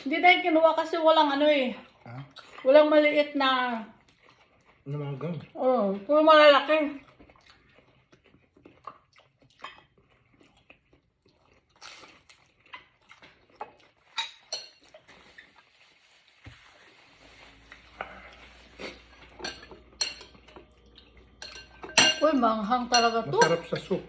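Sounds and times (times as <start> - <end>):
person chewing: 1.8 - 2.7, 4.0 - 5.6, 6.9 - 21.8.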